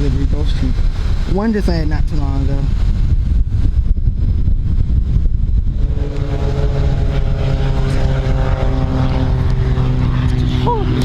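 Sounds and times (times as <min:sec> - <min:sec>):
wind buffeting microphone: 0:00.0 - 0:11.0
aircraft engine humming: 0:04.3 - 0:11.0.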